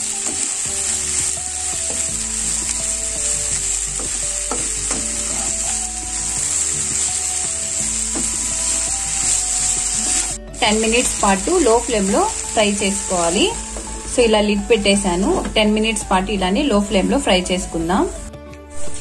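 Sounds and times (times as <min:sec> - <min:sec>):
okra sizzling in hot oil: 0:00.0 - 0:16.0, 0:18.7 - 0:19.0.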